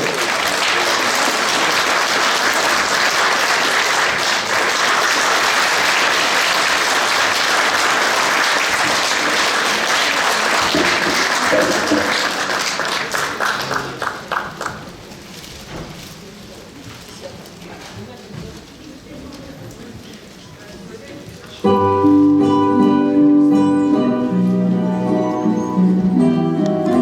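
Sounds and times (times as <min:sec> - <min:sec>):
audience applauding: 0:00.0 - 0:15.1.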